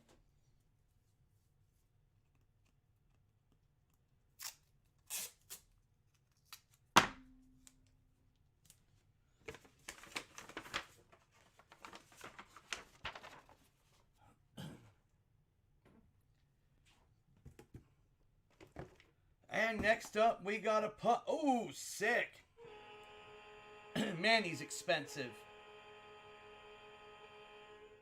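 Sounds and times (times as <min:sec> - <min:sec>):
packaging ripping and rustling: 0:09.5 - 0:13.6.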